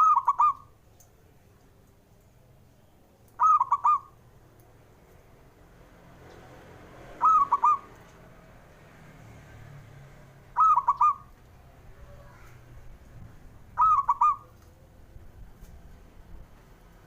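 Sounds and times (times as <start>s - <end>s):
dove cooing song: 0.0s - 0.7s, 3.4s - 4.2s, 7.1s - 8.1s, 10.6s - 11.4s, 13.7s - 15.2s.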